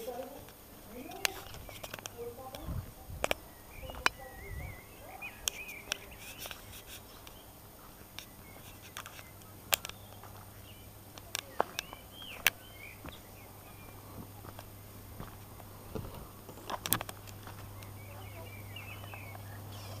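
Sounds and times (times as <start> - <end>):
sharp clicks: 0.0 - 7.5, 8.1 - 10.5, 11.1 - 13.2, 16.4 - 18.1
birds chirping: 0.0 - 20.0.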